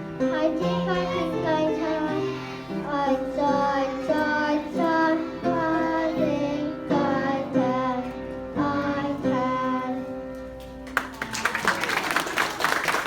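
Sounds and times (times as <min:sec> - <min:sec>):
children singing: 0:00.2 - 0:10.0.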